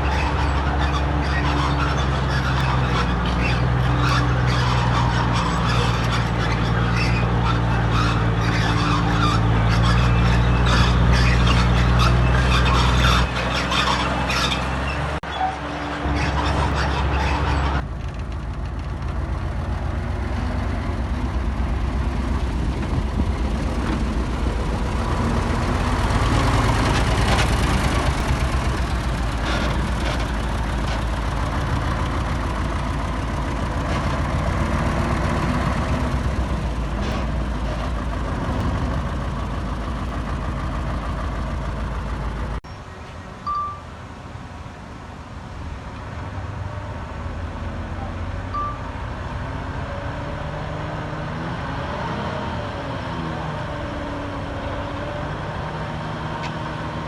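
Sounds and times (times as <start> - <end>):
heavy diesel machinery running: 0.0 - 57.0
short beep: 43.4 - 43.9, 48.5 - 48.9.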